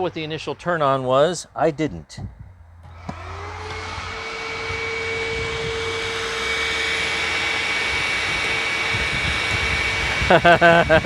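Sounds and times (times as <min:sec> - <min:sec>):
vacuum cleaner motor whining: 0:02.8 - 0:11.0.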